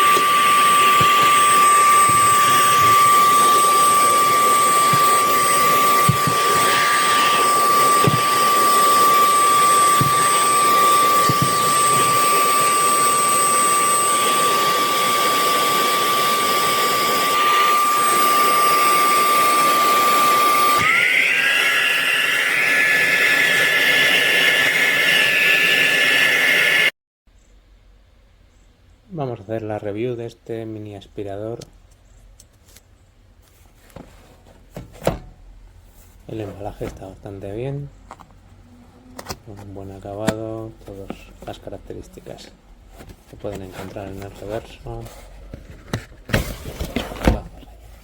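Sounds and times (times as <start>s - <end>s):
handheld vacuum cleaner whine: 0.0s - 27.0s, 45.9s - 47.6s.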